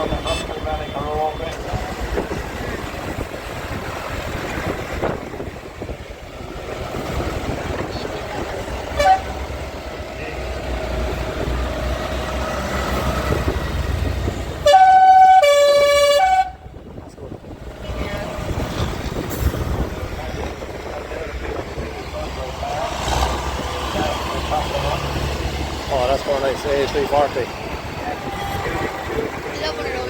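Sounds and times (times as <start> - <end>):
loud two-tone vehicle horn: 0.0 - 1.0, 8.9 - 9.5, 14.6 - 16.6, 28.1 - 29.3
vehicle engines running: 0.0 - 30.0.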